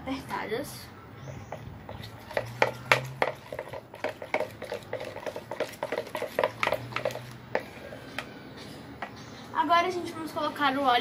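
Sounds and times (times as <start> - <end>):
utensil scraping a bowl: 1.5 - 8.2.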